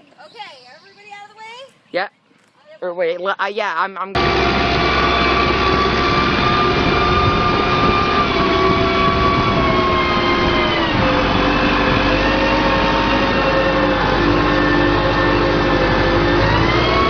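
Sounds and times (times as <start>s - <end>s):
car engine revving hard: 4.2s - 17.0s.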